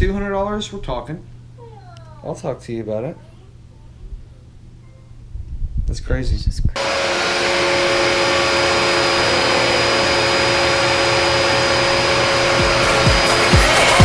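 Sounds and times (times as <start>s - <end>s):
vacuum cleaner running: 6.8s - 14.0s
music beat: 12.4s - 14.0s.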